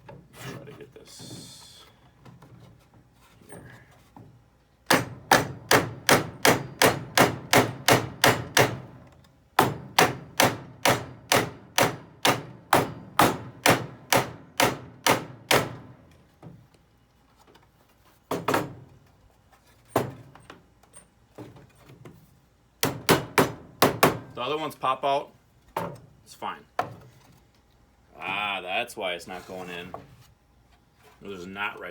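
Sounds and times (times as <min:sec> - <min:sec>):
hammer driving nail into wood: 0:04.9 - 0:09.0, 0:09.6 - 0:15.9.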